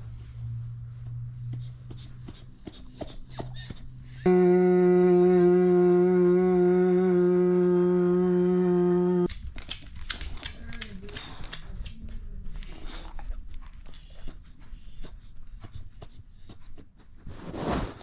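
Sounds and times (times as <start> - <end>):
dog chewing and crunching: 9.4 - 15.8.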